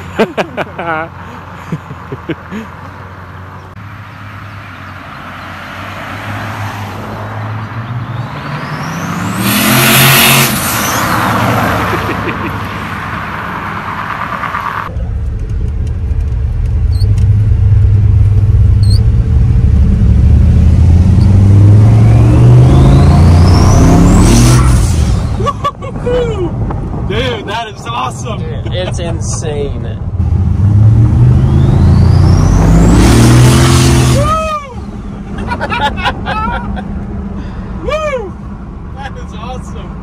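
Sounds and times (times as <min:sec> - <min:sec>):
heavy low rumble: 0:14.9 - 0:22.0
engine accelerating hard: 0:14.9 - 0:25.4, 0:30.2 - 0:36.8
turbo whine: 0:15.8 - 0:24.9.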